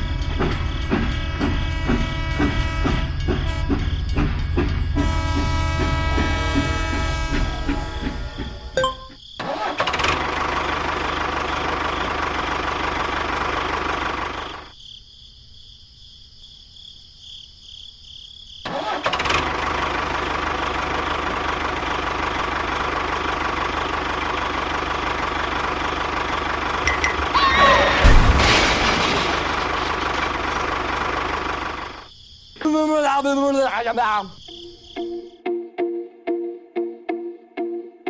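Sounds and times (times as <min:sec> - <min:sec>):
engine-like running sound: 0:09.8 - 0:14.7, 0:19.1 - 0:27.4, 0:28.4 - 0:32.1.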